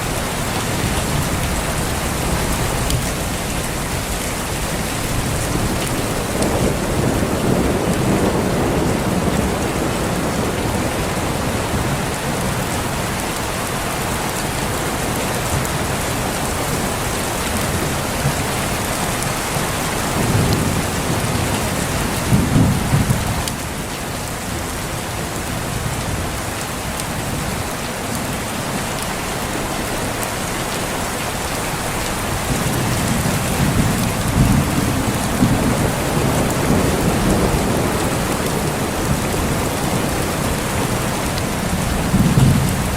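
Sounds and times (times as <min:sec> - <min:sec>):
heavy rain: 0:00.0 - 0:42.9
rolling thunder: 0:00.3 - 0:12.6, 0:19.9 - 0:23.5, 0:32.3 - 0:42.9.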